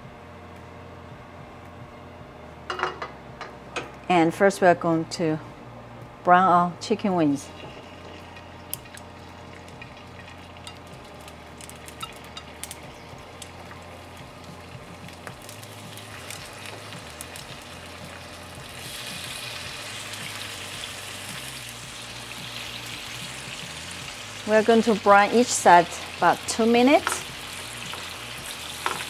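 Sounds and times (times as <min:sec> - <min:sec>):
chicken frying in hot oil: 0:07.6 - 0:29.0.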